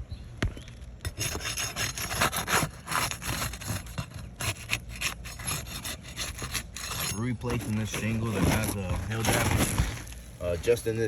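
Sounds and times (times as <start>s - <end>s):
scraping on roof shingles: 1.1s - 11.0s.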